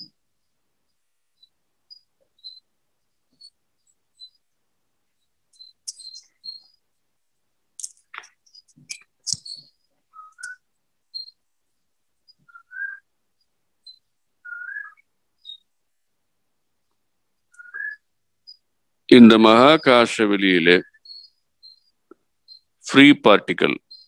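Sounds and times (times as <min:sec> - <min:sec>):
chirps and whistled notes: 0:00.9 - 0:07.0, 0:07.8 - 0:11.5, 0:12.2 - 0:16.1, 0:17.2 - 0:24.0
sharp clicks: 0:05.5 - 0:06.8, 0:07.7 - 0:10.6.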